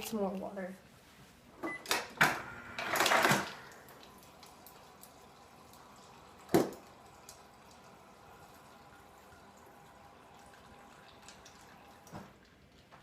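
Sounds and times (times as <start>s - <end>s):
water pouring: 2.9s - 13.0s.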